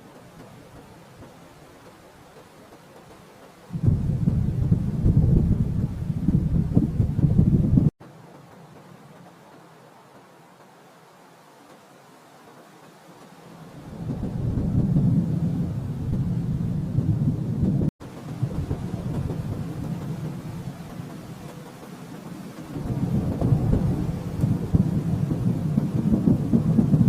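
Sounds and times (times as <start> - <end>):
thunder rumbling: 0.0 - 7.9, 13.5 - 27.0.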